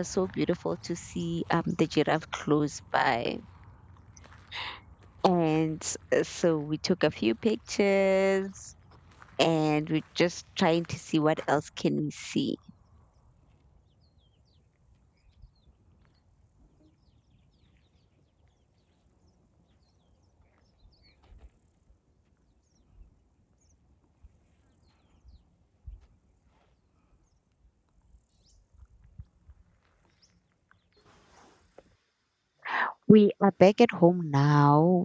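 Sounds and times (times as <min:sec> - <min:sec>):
low uneven rumble: 0:00.0 - 0:13.5
faint birds chirping: 0:00.0 - 0:31.8.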